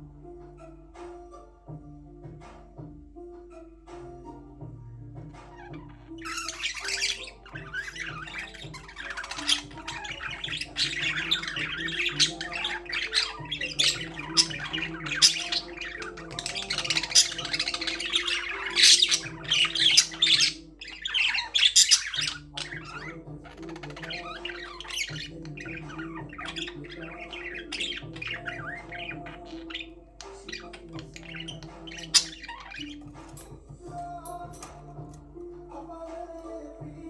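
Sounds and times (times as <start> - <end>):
budgerigars chattering: 5.3 - 33.5.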